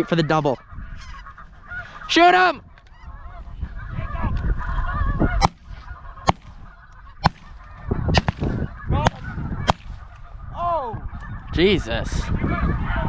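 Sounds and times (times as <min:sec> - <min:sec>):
geese honking: 0:00.0 - 0:13.0
shotgun shots: 0:06.3 - 0:06.6, 0:07.2 - 0:10.0.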